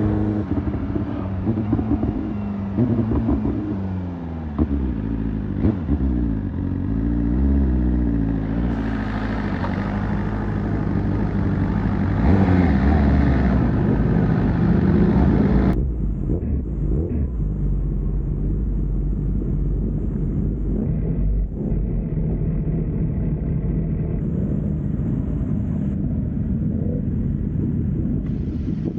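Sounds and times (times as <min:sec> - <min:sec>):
dull low drone: 0:00.0 - 0:28.9
vehicle engine running: 0:00.0 - 0:28.9
wind and road noise: 0:00.0 - 0:28.9.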